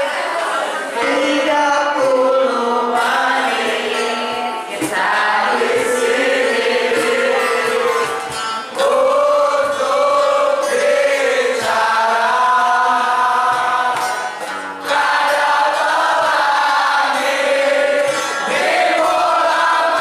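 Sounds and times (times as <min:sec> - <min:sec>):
group of voices singing: 0:00.0 - 0:20.0.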